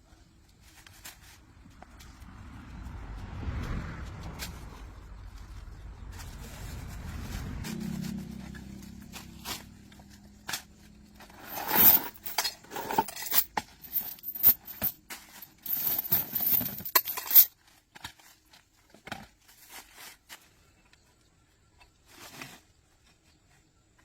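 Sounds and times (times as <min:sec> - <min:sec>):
metal parts knocking and clinking: 0:11.2 - 0:17.5
metal scraping: 0:11.2 - 0:17.5.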